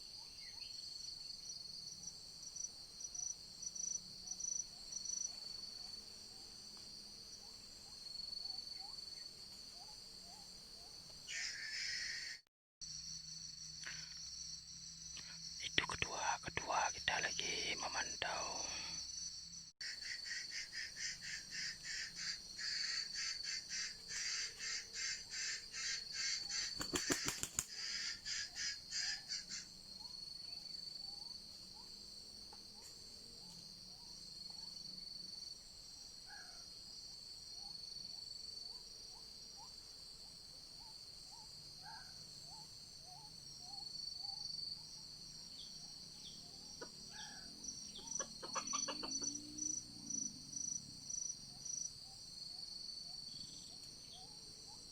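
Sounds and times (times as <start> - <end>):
forest insects buzzing: 0.0 - 54.9
pulsing insect chirr: 0.1 - 54.9
junglefowl calling: 11.3 - 12.4, 19.8 - 29.7, 47.2 - 49.4.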